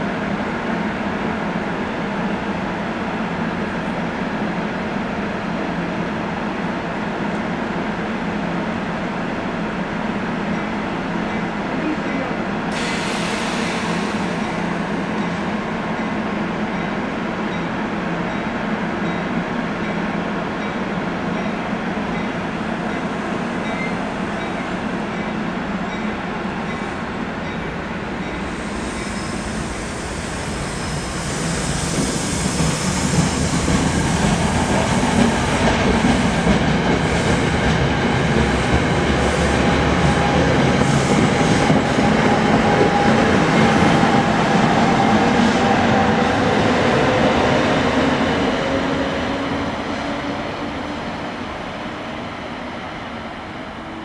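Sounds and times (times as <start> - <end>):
commuter train rumbling: 0.0 - 54.0
high-speed train rushing past: 0.0 - 54.0.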